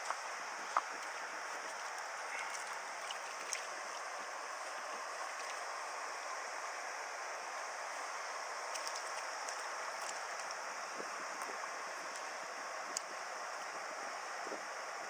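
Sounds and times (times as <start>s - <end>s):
faint ticks: 0.0s - 1.1s, 8.7s - 10.6s, 12.9s - 13.1s
stream water rushing: 0.0s - 15.0s.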